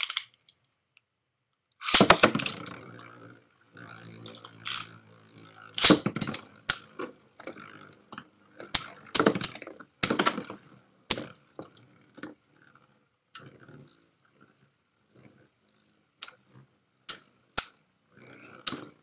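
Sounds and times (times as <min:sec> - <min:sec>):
spinning tops clashing: 0:01.8 - 0:02.8, 0:04.5 - 0:05.0.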